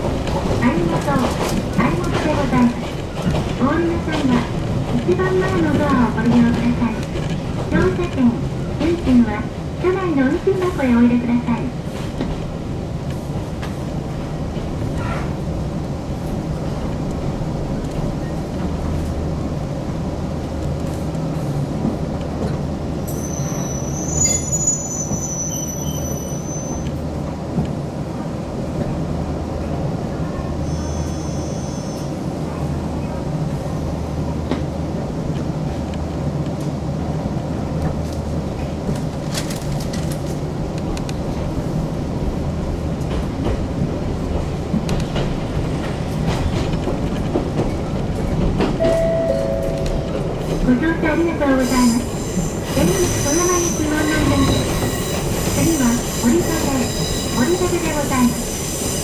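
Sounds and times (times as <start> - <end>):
train motors and wheels rumbling: 0.0 - 59.0
high ringing tone: 48.8 - 50.2.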